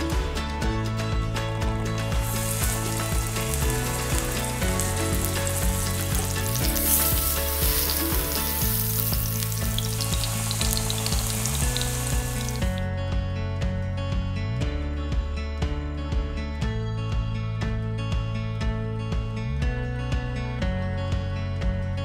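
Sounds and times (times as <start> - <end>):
background music: 0.0 - 22.0
food sizzling in hot oil: 2.1 - 12.8.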